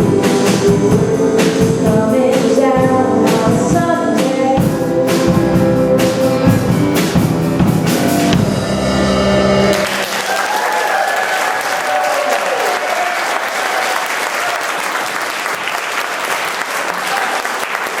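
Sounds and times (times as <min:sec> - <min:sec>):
audience applauding: 0:09.7 - 0:18.0
person cheering: 0:10.0 - 0:14.7.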